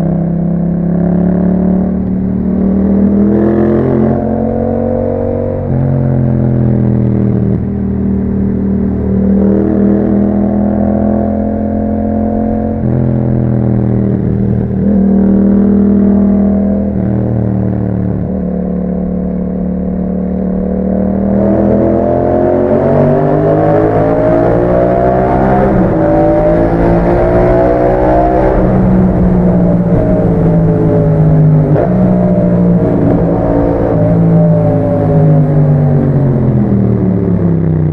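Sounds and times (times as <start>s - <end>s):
motorcycle engine accelerating: 0.0s - 37.9s.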